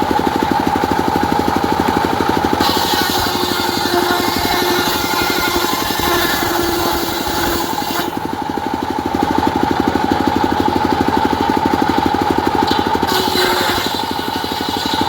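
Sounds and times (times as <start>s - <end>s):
diesel engine throbbing: 0.0s - 15.0s
saw blade humming: 0.0s - 15.0s
hissing cutting noise: 2.4s - 8.3s, 12.7s - 15.0s.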